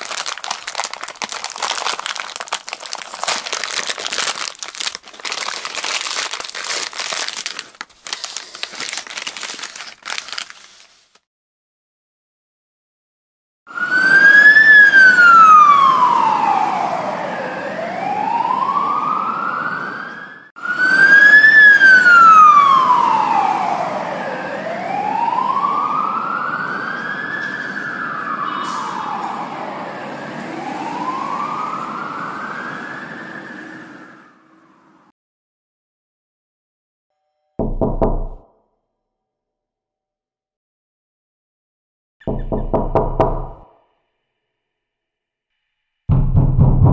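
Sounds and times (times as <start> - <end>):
emergency siren wailing: 13.7 - 35.1.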